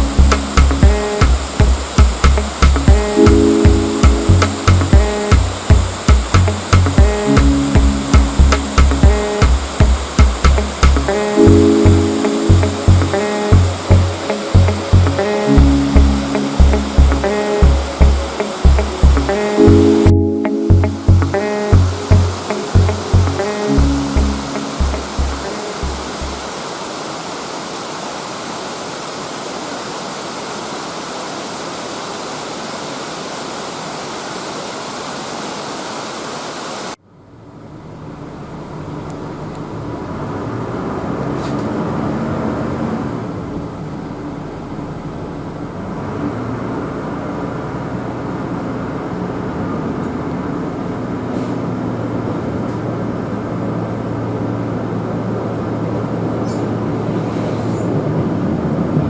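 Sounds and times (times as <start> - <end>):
diesel rail motor engine hum: 0.0 - 26.4
waterfall rushing: 0.0 - 37.0.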